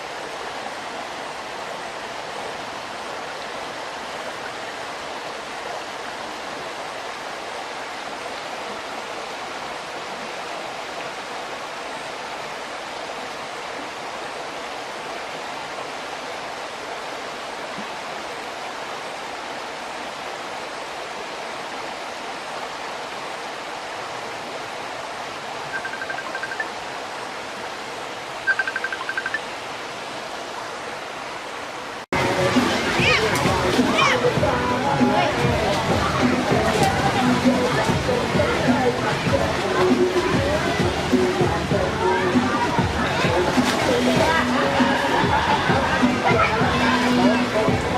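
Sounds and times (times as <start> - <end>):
waterfall rushing: 0.0 - 47.9
rapid high-pitched beeps: 25.7 - 26.7, 28.5 - 29.4.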